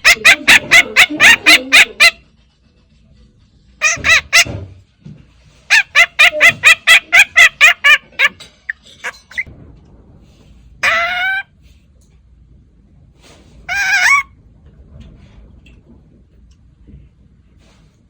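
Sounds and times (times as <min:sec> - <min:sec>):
bird clucking calls: 0:00.0 - 0:02.2, 0:03.8 - 0:04.6, 0:05.7 - 0:09.5, 0:13.7 - 0:14.3.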